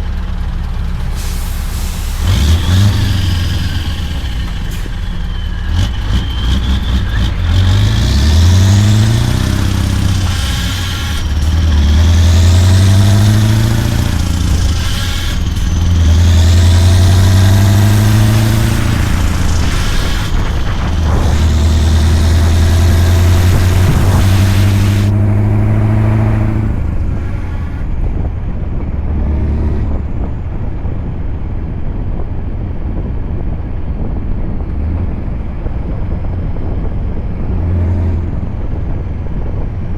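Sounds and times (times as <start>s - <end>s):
truck engine shifting gears: 0.0s - 39.9s.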